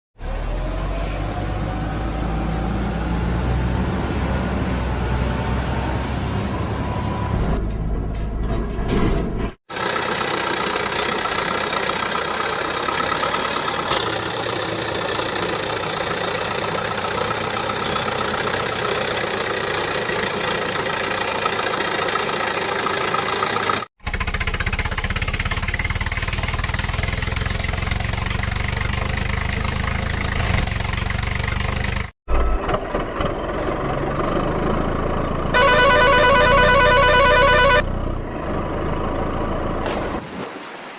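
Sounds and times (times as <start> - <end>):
vehicle engine running: 9.7 - 32.1, 33.3 - 39.8.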